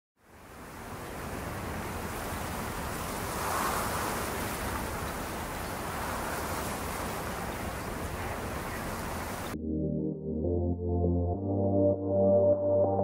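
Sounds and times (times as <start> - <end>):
ocean surf: 0.2 - 9.6
wind: 0.2 - 9.6.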